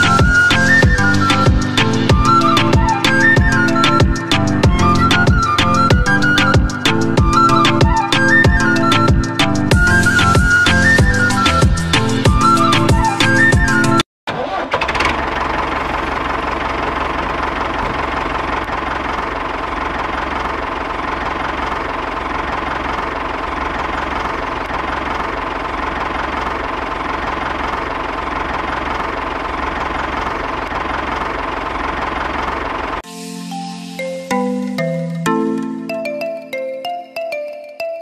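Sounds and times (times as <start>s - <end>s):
music: 0.0s - 14.0s, 33.0s - 38.0s.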